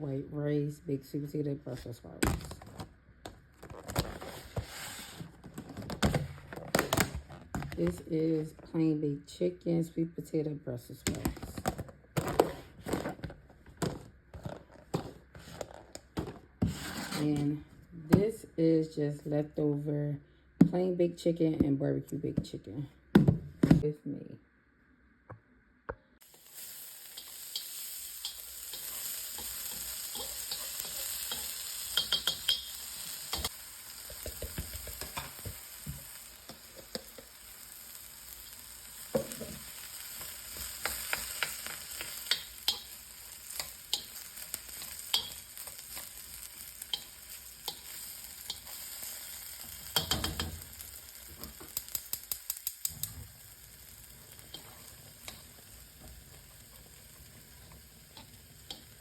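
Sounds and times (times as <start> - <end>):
food sizzling in a frying pan: 26.2 - 59.0
utensil clicking and scraping pan: 27.2 - 33.5, 40.2 - 46.2.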